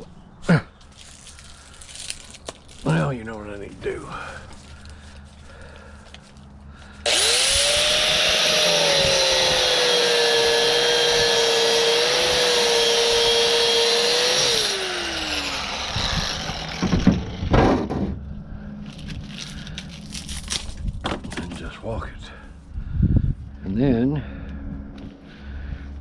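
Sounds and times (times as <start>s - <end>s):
electric power tool whining: 7.0s - 18.0s
sharp knocks: 16.8s - 18.2s.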